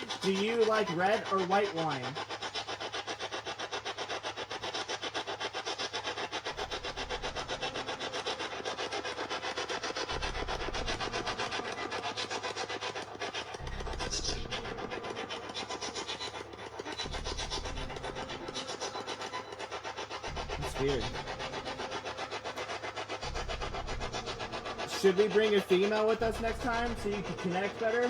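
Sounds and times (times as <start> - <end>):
radio static chopping rapidly: 20.6 - 23.1, 23.8 - 28.0.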